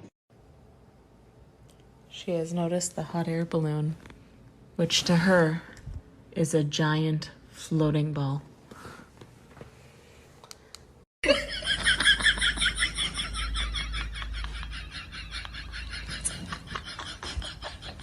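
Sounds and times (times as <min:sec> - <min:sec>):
person laughing hard: 0:11.2 - 0:18.0.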